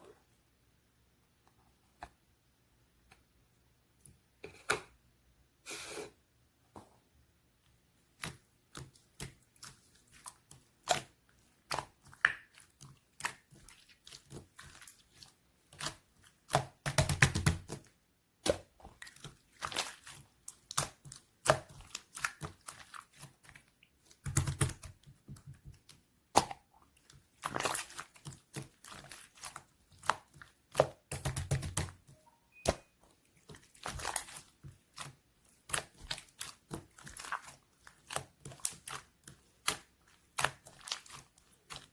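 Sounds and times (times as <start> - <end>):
slime crackling: 8.1 - 32.1, 32.8 - 41.9.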